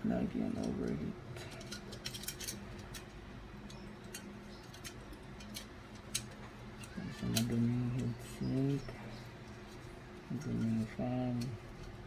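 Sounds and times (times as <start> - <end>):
faint steady hum: 0.0 - 12.0
computer parts clicking and tapping: 0.5 - 12.0.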